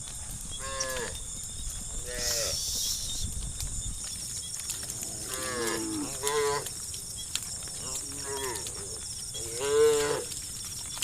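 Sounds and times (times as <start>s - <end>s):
cows mooing: 4.9s - 6.7s, 7.8s - 10.4s.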